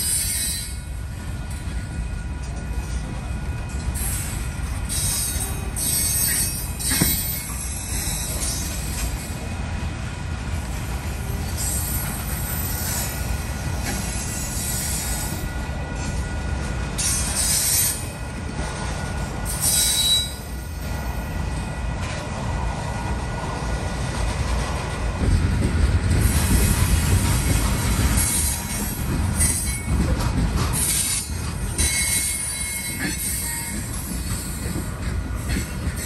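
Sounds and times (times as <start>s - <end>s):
high-pitched wheel squeals: 0.0s - 0.8s, 4.9s - 9.4s, 19.5s - 20.6s, 30.8s - 34.7s
train wheels rumbling on rails: 0.0s - 36.0s.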